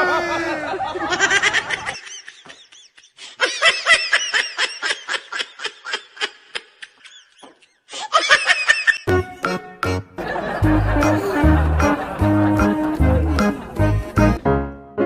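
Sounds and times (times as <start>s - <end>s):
person laughing hard: 0.0s - 9.1s, 10.2s - 14.2s.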